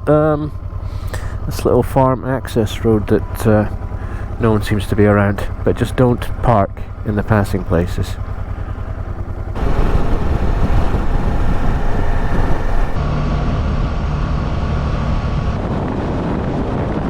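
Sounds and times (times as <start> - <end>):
motorcycle engine running: 0.0 - 13.0
wind on microphone: 9.6 - 13.0.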